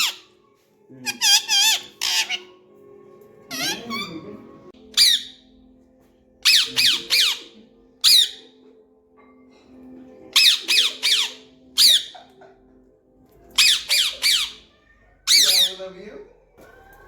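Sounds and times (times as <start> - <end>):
parrot squawking: 0.0 - 0.3, 1.0 - 2.6, 3.5 - 5.4, 6.4 - 8.5, 10.3 - 12.5, 13.6 - 16.0.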